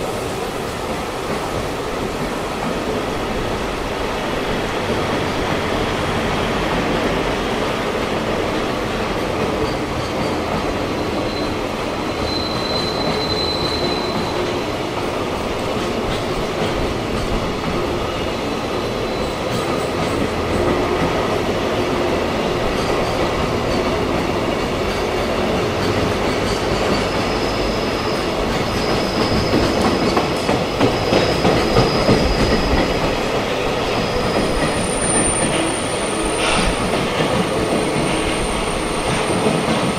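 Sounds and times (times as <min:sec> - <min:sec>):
train wagons rumbling on rails: 0:00.0 - 0:39.9
faint high wheel squeal: 0:09.7 - 0:14.6, 0:26.5 - 0:30.2, 0:30.9 - 0:33.0, 0:33.7 - 0:36.8.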